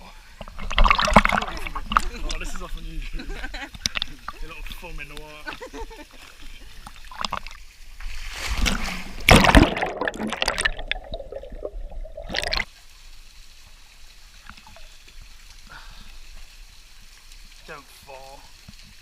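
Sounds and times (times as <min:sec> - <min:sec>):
faint trickle of water: 0:00.0 - 0:08.7, 0:10.4 - 0:19.0
water splashing and sloshing: 0:00.0 - 0:19.0.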